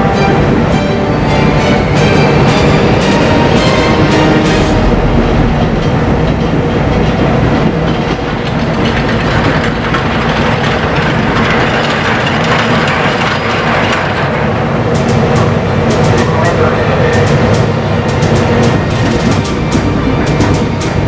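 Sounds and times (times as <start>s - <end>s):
low hum: 0.0s - 10.5s
ship machinery clattering: 0.0s - 21.0s.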